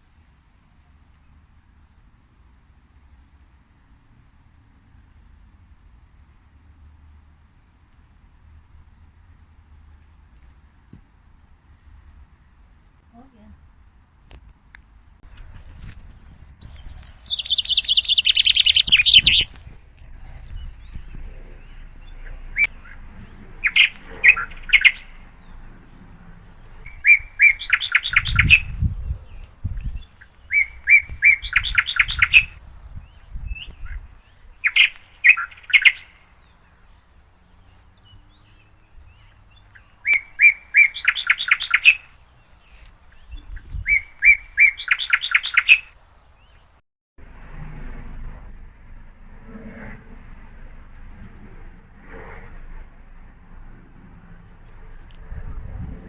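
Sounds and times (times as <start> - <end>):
small bird singing: 15.2 - 46.8.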